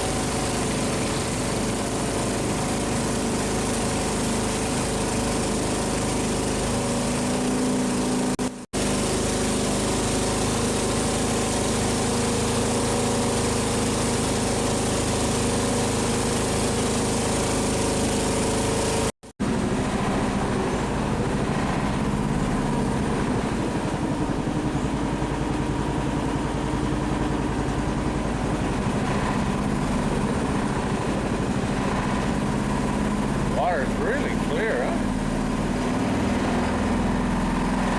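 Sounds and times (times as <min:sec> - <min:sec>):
boat engine droning: 0:00.0 - 0:37.9.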